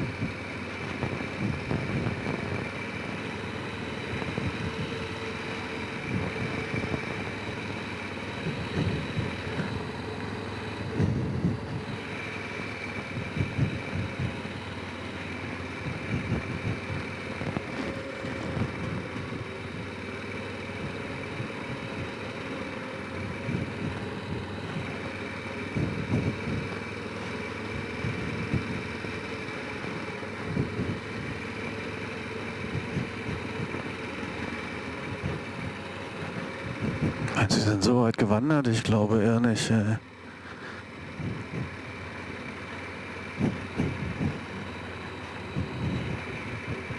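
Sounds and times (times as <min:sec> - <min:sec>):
quad bike engine running: 0:00.0 - 0:37.4.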